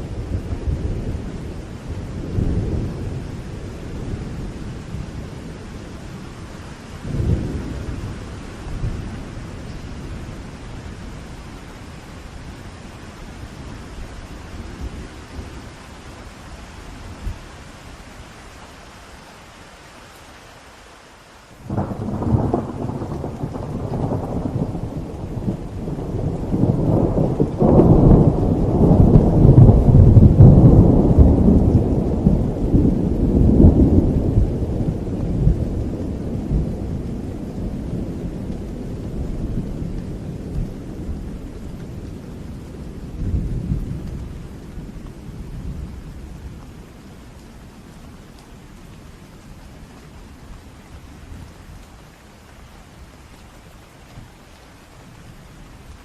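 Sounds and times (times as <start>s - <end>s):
thunder rumbling: 0.0s - 11.5s, 21.6s - 48.0s
steady rain: 0.0s - 56.0s.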